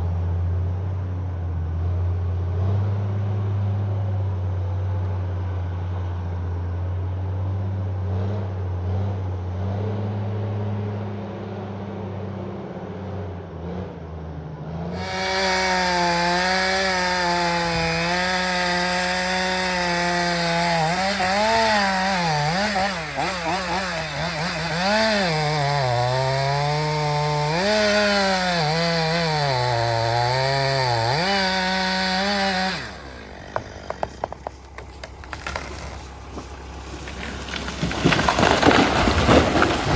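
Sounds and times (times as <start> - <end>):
chainsaw cutting wood: 14.9 - 39.9
wood cracking: 15.0 - 39.9
engine idling: 32.2 - 39.9.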